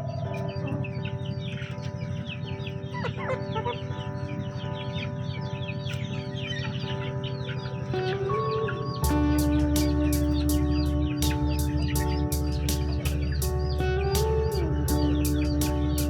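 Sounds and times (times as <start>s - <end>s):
high chirps: 0.0s - 16.0s
quiet background music: 0.0s - 16.0s
chickens clucking: 3.0s - 4.4s.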